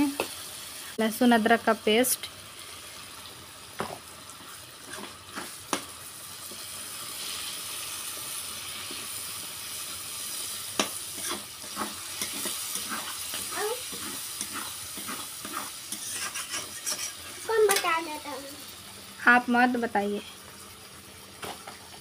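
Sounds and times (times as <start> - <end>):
spices sizzling in hot oil: 0.0 - 22.0
spoon knocking and scraping pan: 3.8 - 5.9, 10.7 - 17.9.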